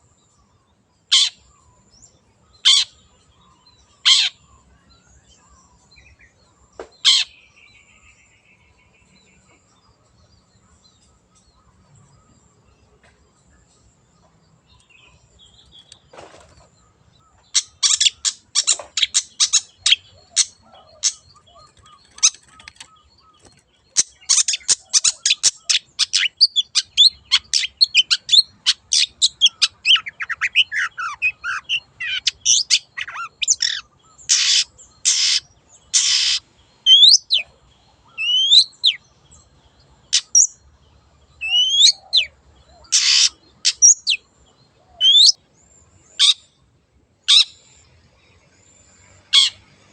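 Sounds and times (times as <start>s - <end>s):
bird chattering notes: 17.5s - 35.4s.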